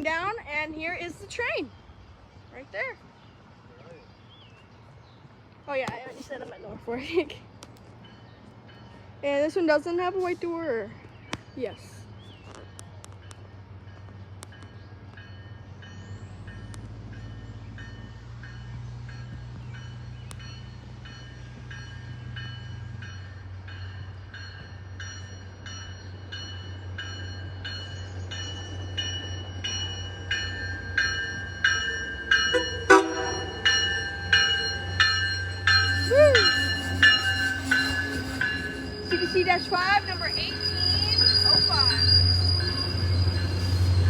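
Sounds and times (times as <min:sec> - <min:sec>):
train rumble: 0:00.0 - 0:44.0
crossing warning bell ringing: 0:13.3 - 0:44.0
train horn blast: 0:32.5 - 0:41.9.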